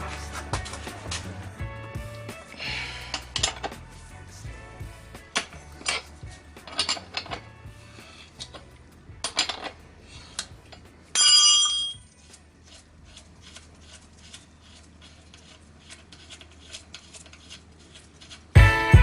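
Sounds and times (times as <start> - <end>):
metal tools clinking: 3.1 - 3.8, 5.4 - 7.5, 8.3 - 12.2
metal ringing sharply: 11.2 - 12.0.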